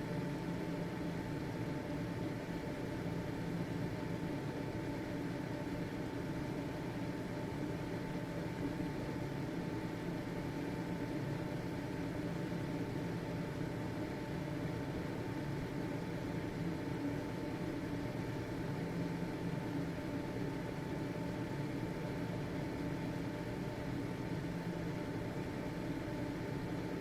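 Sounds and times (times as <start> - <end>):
faint fan whine: 0.0 - 27.0.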